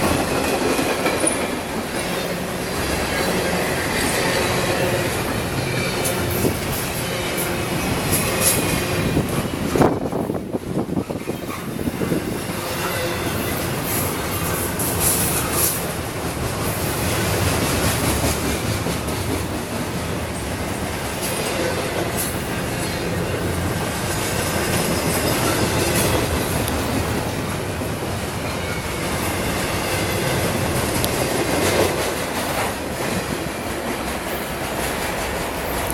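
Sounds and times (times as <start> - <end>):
freight train wheels rumbling on rail: 0.0 - 35.9
sharp rail clicks: 8.0 - 8.9.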